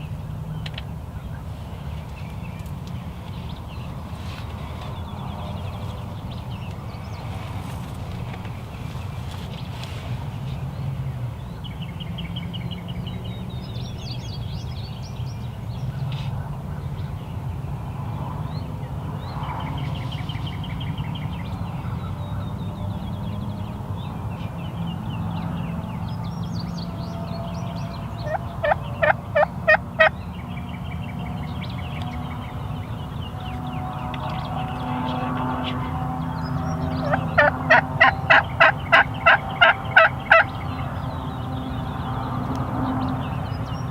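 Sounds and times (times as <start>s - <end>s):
songbirds chirping and trilling: 0.0s - 43.9s
turkey calling: 28.2s - 30.1s, 37.0s - 40.8s.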